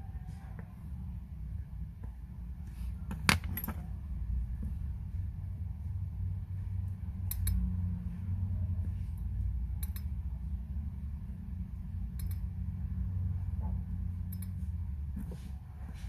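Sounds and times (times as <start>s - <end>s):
steady low hum: 0.0s - 16.0s
small sharp tool clicks: 7.3s - 7.6s, 12.2s - 12.4s.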